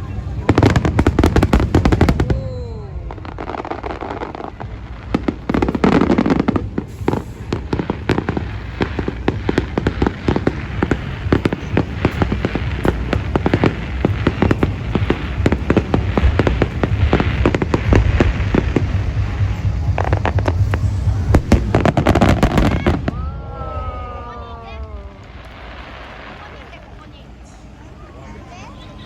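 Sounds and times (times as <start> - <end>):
fireworks crackling: 0.0 - 29.0
falling firework whistle: 1.8 - 3.9.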